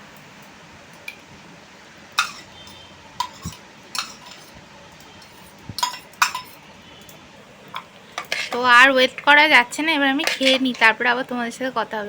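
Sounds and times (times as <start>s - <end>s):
spoon clinking against a bowl: 2.2s - 4.6s, 5.2s - 6.7s, 7.8s - 8.7s, 10.2s - 11.0s.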